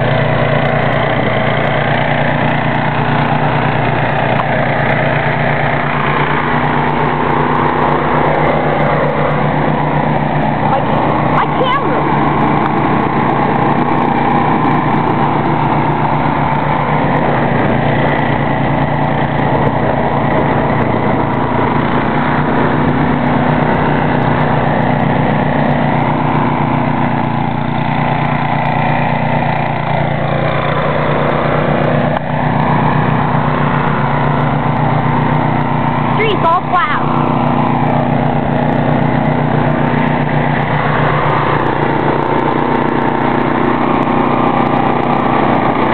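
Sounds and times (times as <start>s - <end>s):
snow thrower engine running: 0.0s - 45.9s.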